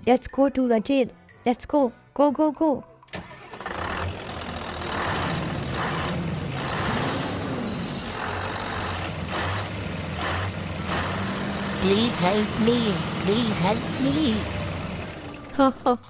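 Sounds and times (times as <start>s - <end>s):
vehicle engine humming: 3.2s - 16.0s.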